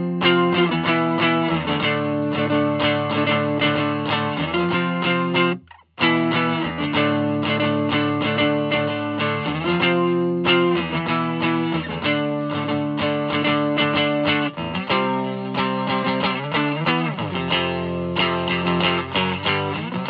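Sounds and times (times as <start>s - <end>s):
electric guitar chords and notes: 0.0s - 20.0s.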